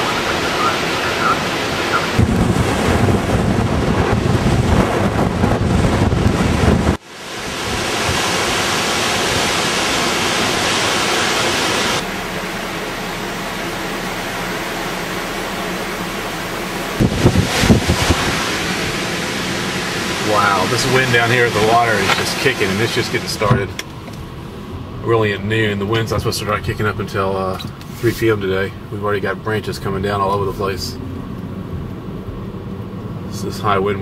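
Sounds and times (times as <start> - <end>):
wind gusts buffeting microphone: 0.0 - 12.0, 16.9 - 25.0
rushing wind and water: 0.0 - 29.0.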